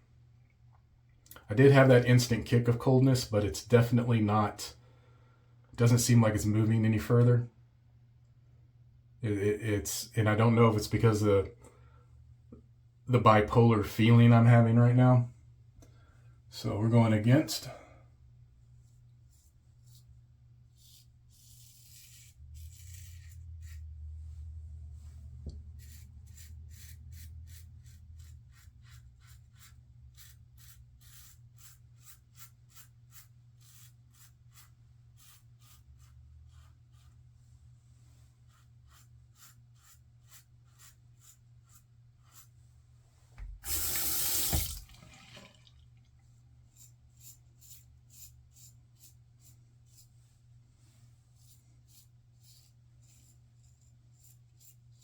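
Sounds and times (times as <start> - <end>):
razor scraping stubble: 38.5 - 42.6
tap running into sink: 43.4 - 45.7.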